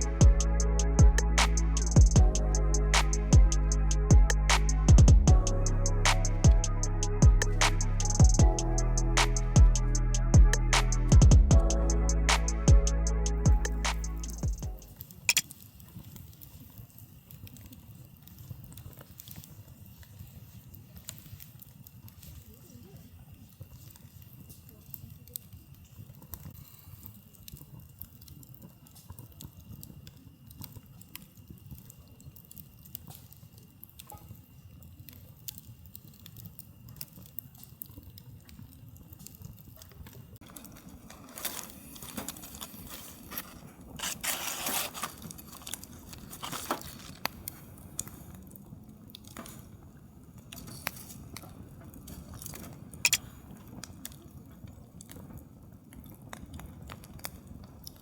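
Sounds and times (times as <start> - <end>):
low steady rumble: 0.0 - 14.9
campfire crackling and popping: 0.0 - 58.0
loud rustling noise: 41.0 - 47.3.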